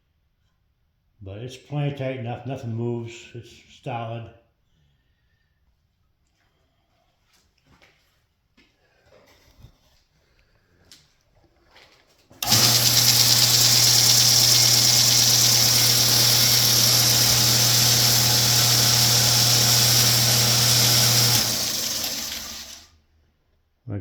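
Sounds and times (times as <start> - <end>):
belt grinder running: 12.4 - 23.0
belt grinder winding down: 12.4 - 23.0.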